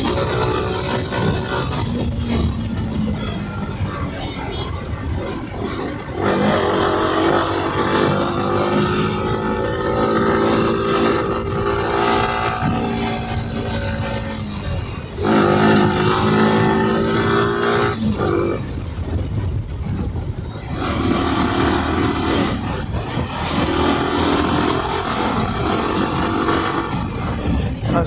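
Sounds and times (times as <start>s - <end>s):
motorcycle engine under throttle: 0.0s - 28.0s.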